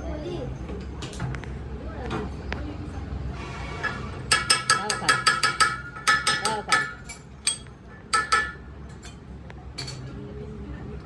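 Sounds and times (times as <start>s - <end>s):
hammer striking steel: 4.3s - 9.2s.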